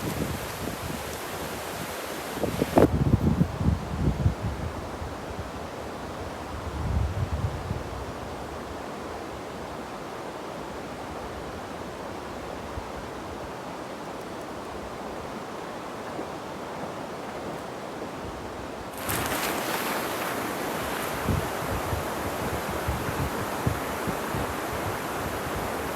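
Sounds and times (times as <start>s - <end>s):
wind thumps on microphone: 0.0s - 1.2s, 2.4s - 4.4s, 19.0s - 25.9s
river rushing: 0.0s - 2.9s, 8.8s - 25.9s.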